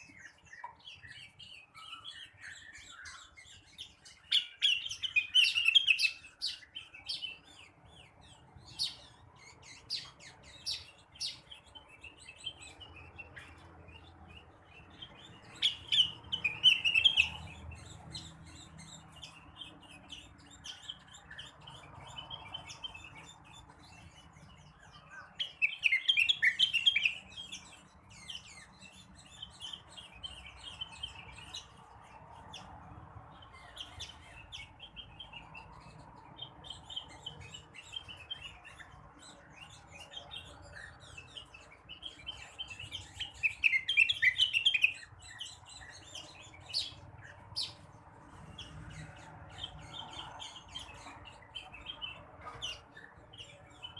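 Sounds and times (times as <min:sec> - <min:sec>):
bird twittering: 0:00.0 - 0:31.9, 0:33.4 - 0:53.9
bird chattering song: 0:00.0 - 0:53.9.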